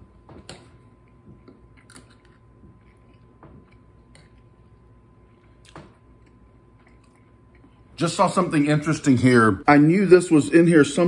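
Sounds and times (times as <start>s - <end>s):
wet chewing with small clicks: 0.2s - 8.0s.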